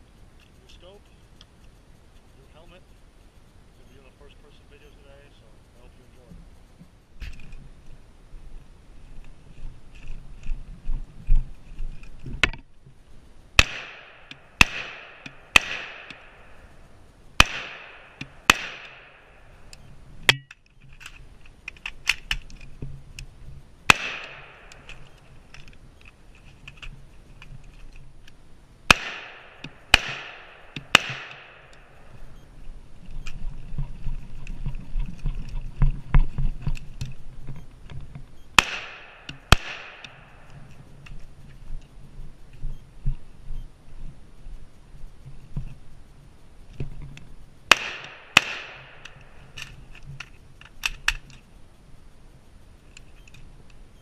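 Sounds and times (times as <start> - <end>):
rifle shots with echo: 13.6 - 16.6, 17.4 - 19.4, 23.9 - 25.1, 28.9 - 32.0, 38.6 - 40.5, 47.7 - 49.4.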